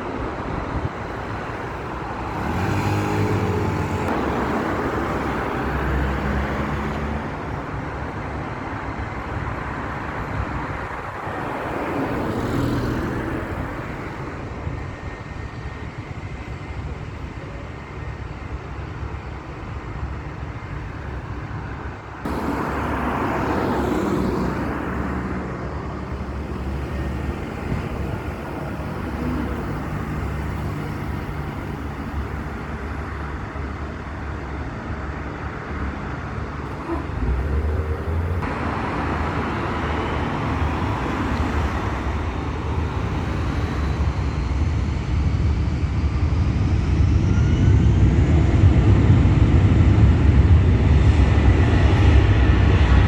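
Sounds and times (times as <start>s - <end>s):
jet engines rumbling: 0.0s - 53.0s
jet engine whine rising: 17.7s - 53.0s.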